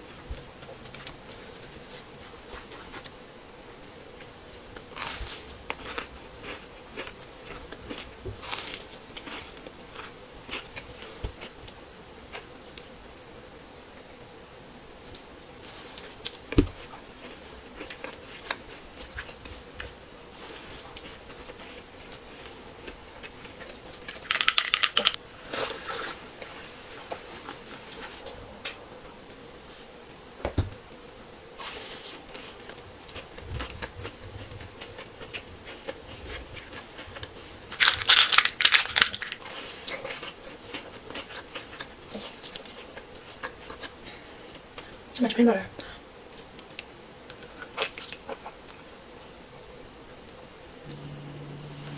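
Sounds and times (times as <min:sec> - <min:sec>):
crunchy biting and chewing: 0:04.2 - 0:12.9, 0:15.9 - 0:26.6, 0:31.6 - 0:44.0.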